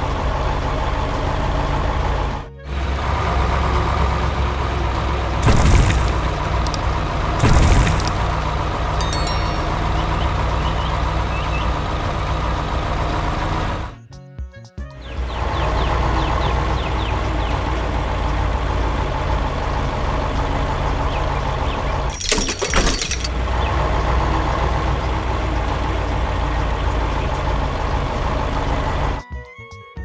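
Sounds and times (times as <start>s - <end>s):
heavy truck engine running: 0.0s - 14.0s, 15.2s - 29.2s
loud burst of noise: 4.8s - 9.0s.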